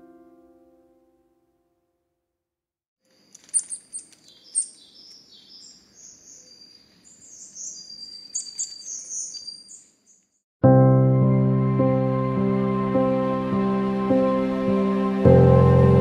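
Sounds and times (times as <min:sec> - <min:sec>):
songbirds chirping: 0:03.1 - 0:10.4.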